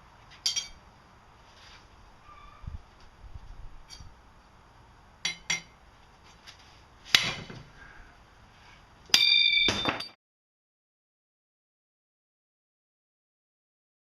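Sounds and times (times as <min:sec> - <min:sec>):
steel blade striking anvil: 0:00.4 - 0:00.8, 0:05.2 - 0:05.7, 0:09.1 - 0:10.2
blade breaking with metallic ring: 0:09.2 - 0:10.2.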